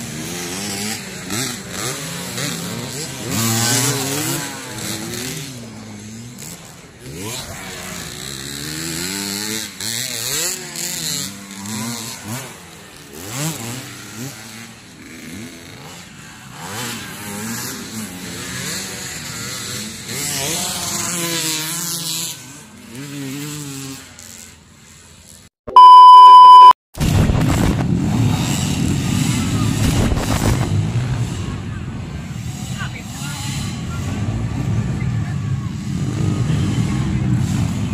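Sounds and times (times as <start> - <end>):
dirt bike engines revving: 0.0 - 26.7, 28.0 - 37.9
loud steady beep: 25.7 - 26.8.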